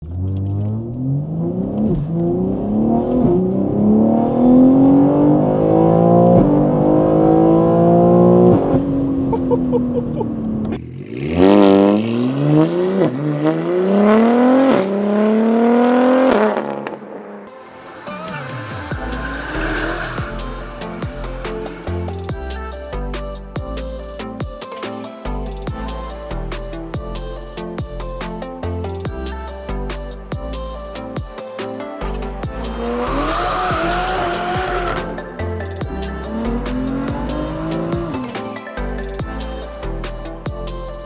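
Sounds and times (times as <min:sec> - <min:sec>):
car engine accelerating hard: 0:18.1 - 0:21.4, 0:32.8 - 0:35.1.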